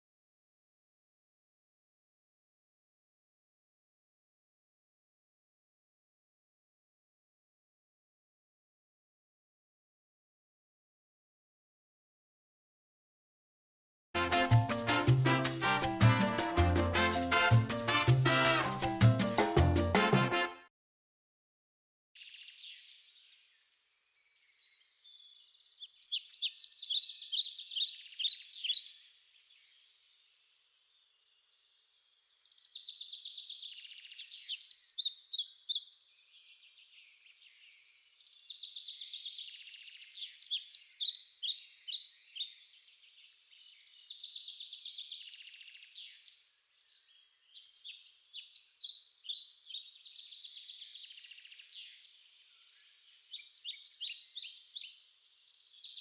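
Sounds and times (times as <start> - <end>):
birds chirping and trilling: 22.2 - 56.0.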